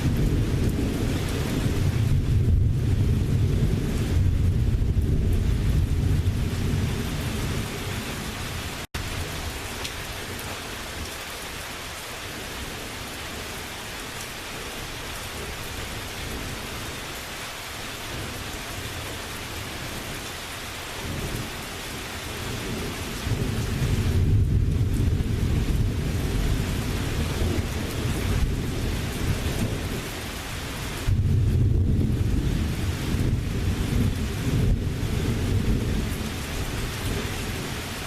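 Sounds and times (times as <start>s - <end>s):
thunder rumbling: 0.0s - 9.6s, 21.0s - 38.0s
steady rain: 0.0s - 38.0s.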